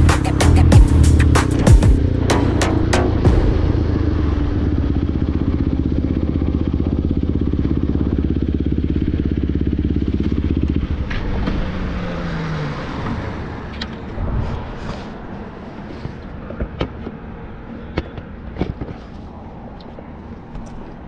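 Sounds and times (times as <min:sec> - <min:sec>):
motorcycle engine revving high: 0:00.0 - 0:15.3.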